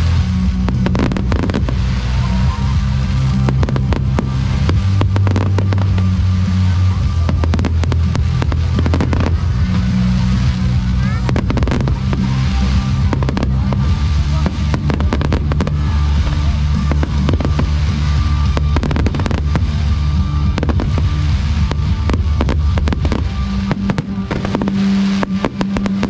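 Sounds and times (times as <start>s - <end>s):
background music with bass: 0.0s - 26.0s
fireworks bangs and crackles: 0.0s - 26.0s.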